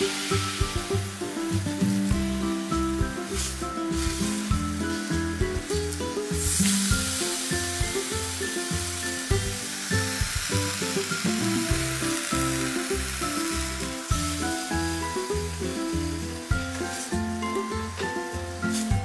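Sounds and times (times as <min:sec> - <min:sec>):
background music: 0:00.0 - 0:19.0
slices sizzling in oil: 0:00.0 - 0:19.0.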